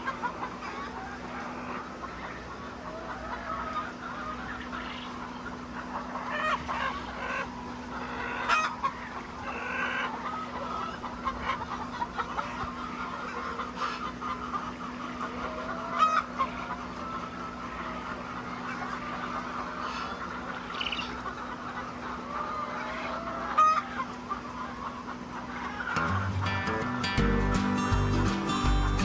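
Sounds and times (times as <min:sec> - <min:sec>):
hens clucking: 0:00.0 - 0:29.0
steady low hum: 0:24.2 - 0:29.0.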